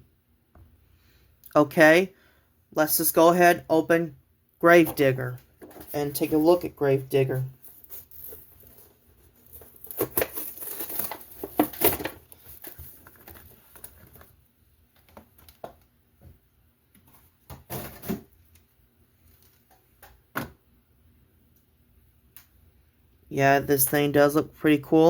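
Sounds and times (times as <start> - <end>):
rustles and clicks: 7.5 - 14.4
packaging crinkling and tearing: 7.6 - 14.4.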